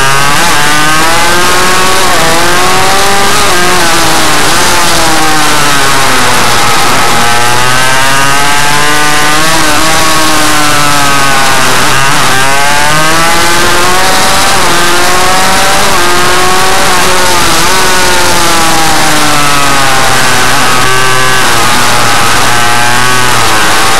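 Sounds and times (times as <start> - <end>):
small motorcycle engine revving: 0.0 - 23.9.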